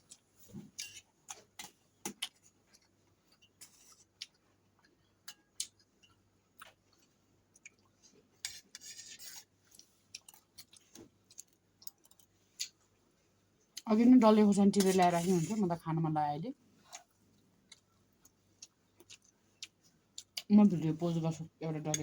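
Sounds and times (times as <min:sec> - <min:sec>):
chewing rice: 0:00.0 - 0:12.8, 0:16.8 - 0:20.5
crunchy chewing: 0:16.8 - 0:20.5.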